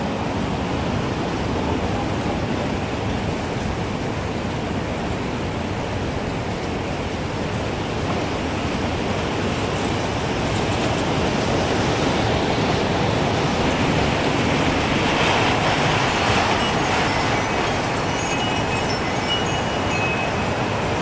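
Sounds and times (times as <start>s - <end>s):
gusting wind rushing: 0.0s - 21.0s
faint wind chime tinkles: 15.1s - 21.0s.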